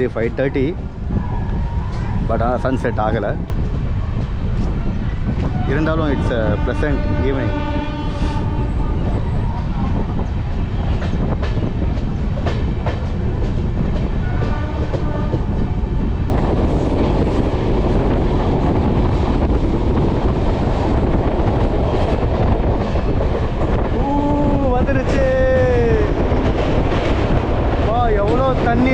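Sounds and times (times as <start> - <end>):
train rumble: 0.0 - 28.9
train wheels clicking on rails: 9.9 - 15.7, 16.3 - 28.9.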